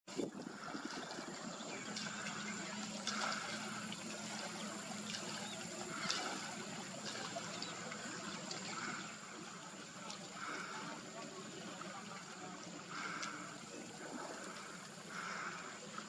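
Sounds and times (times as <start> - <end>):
water trickling: 0.1 - 16.0
soft repeating calls: 1.6 - 12.0
faint clicks: 13.0 - 13.5.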